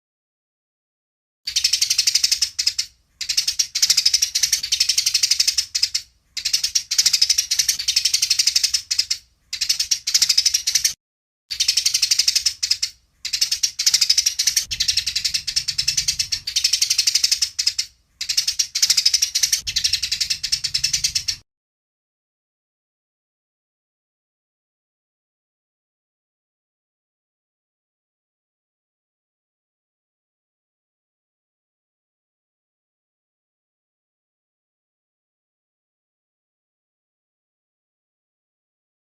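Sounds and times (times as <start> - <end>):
sparrows chattering: 1.5 - 21.4.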